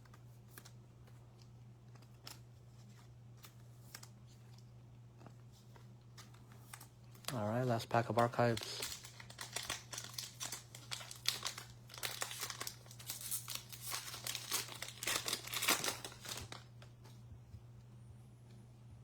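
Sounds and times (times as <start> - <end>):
card pack wrapper tearing and crinkling: 6.1 - 16.8.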